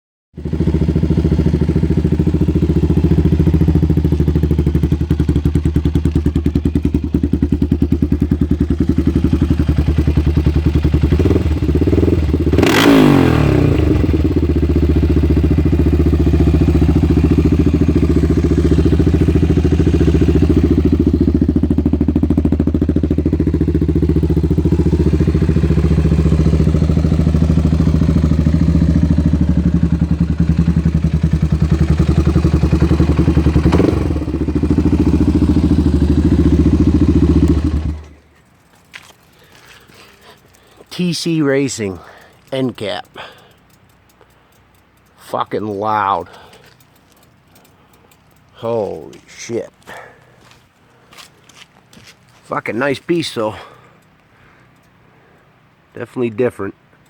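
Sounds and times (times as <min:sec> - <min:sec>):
engine revving: 0:00.4 - 0:38.2
single-cylinder engine idling: 0:00.4 - 0:38.2.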